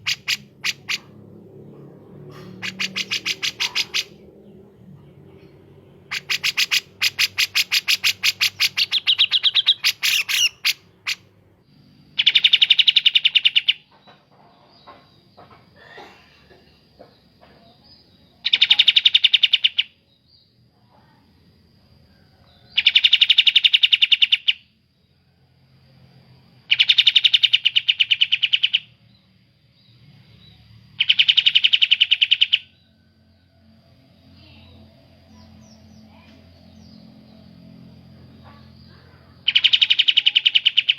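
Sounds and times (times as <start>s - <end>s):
bulbul birdsong: 0.0s - 1.2s, 1.8s - 11.3s, 12.1s - 20.6s, 26.7s - 33.4s, 34.4s - 40.9s
short rapid bird trills: 0.0s - 1.2s, 2.3s - 4.2s, 6.1s - 11.2s
bird chirps: 0.0s - 21.2s, 22.5s - 24.7s, 26.7s - 33.0s, 34.2s - 40.9s.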